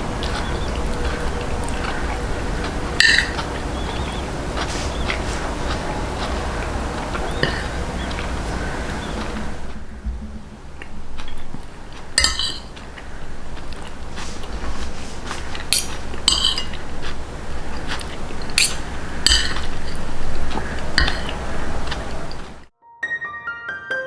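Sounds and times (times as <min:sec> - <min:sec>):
biting and chewing: 0:00.0 - 0:22.7
cutlery clinking on plate: 0:03.0 - 0:04.0, 0:12.2 - 0:12.8, 0:13.4 - 0:22.6.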